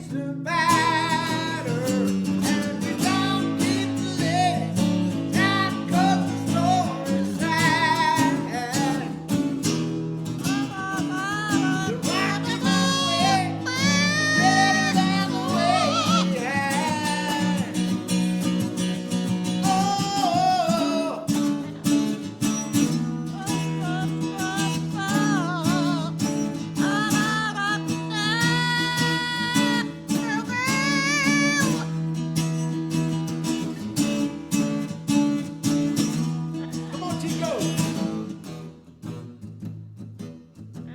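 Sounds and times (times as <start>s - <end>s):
high singing voice: 0.0s - 9.5s, 10.4s - 18.2s, 19.6s - 22.2s, 22.8s - 31.9s
acoustic guitar strummed and picked: 0.0s - 40.9s.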